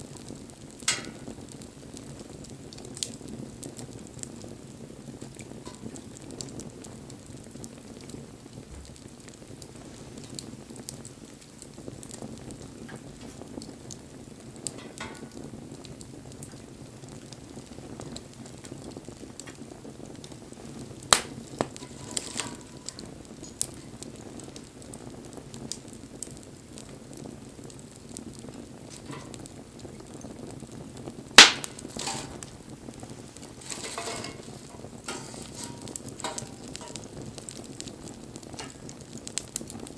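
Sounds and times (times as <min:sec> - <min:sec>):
campfire crackling: 0:00.0 - 0:39.9
sharp loud fire pops: 0:00.8 - 0:01.6, 0:21.0 - 0:24.2, 0:31.2 - 0:39.7.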